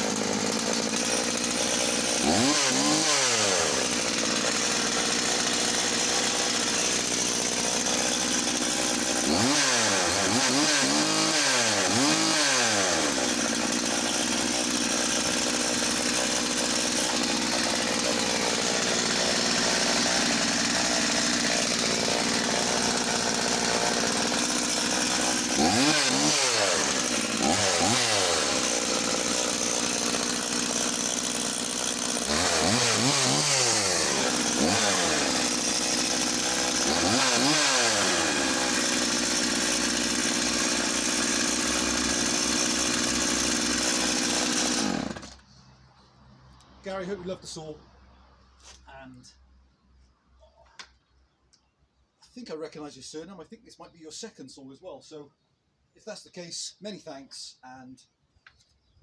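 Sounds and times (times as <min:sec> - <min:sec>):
chainsaw idling and revving: 0:00.0 - 0:45.5.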